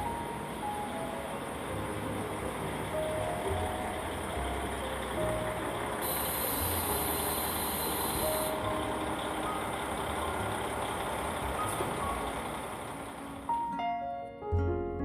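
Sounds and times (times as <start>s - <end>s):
train rumbling: 0.0s - 13.6s
piano music: 0.0s - 15.0s
high hiss: 6.0s - 8.7s.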